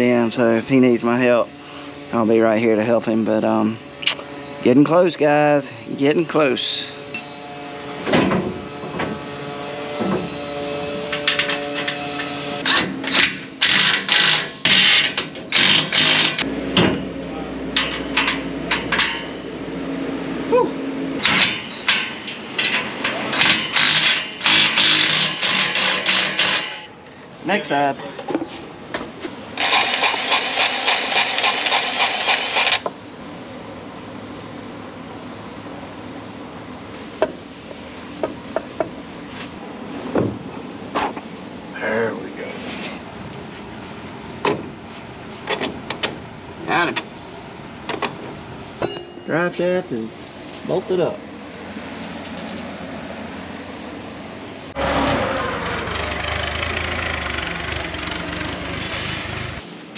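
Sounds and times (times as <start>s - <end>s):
pneumatic wrench rattling: 12.6s - 16.4s, 21.2s - 26.9s, 29.6s - 32.9s
diesel engine running: 29.0s - 39.2s, 50.2s - 59.9s.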